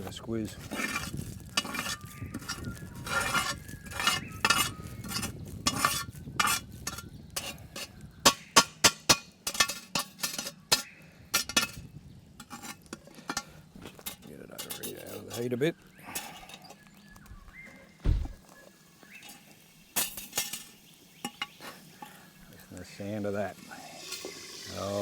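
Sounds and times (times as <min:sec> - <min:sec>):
metal clinks and scrapes: 0:12.4 - 0:15.5
meat sizzling: 0:17.2 - 0:25.0.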